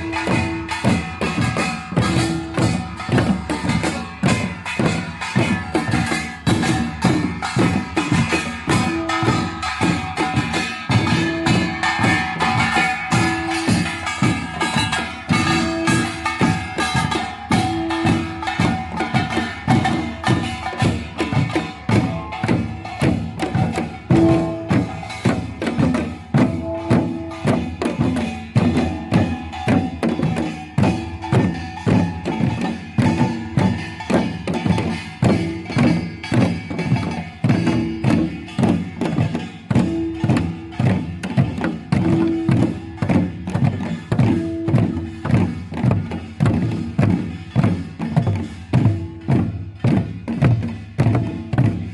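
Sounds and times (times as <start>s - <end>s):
drums playing fast rhythm: 0.0s - 51.9s
ringing metal gong tones: 8.7s - 45.7s.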